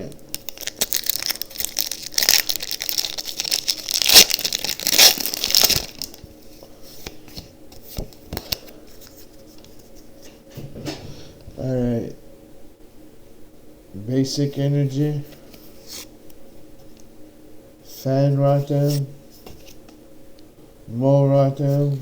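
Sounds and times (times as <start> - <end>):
foil wrapper tearing and crinkling: 0.3 - 6.3.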